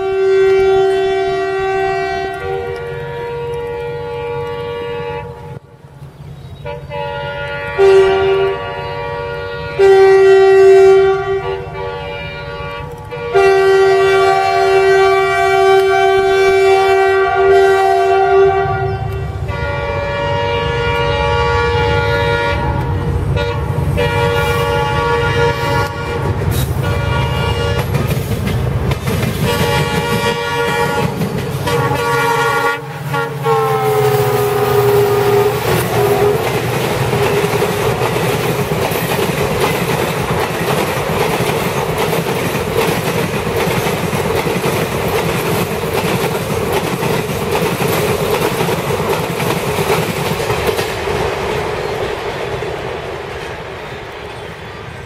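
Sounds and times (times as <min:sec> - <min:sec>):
train wheels clickety-clack: 0:00.0 - 0:04.7, 0:05.9 - 0:19.6, 0:21.9 - 0:55.0
train horn blasts: 0:00.0 - 0:05.8, 0:06.5 - 0:28.1, 0:29.4 - 0:38.2.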